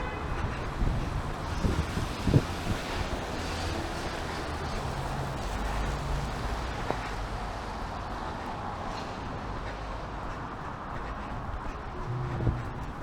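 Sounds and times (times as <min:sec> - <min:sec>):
wind and rain: 0:00.0 - 0:13.0
motor vehicle passing: 0:00.4 - 0:13.0
faint engine hum: 0:03.5 - 0:13.0.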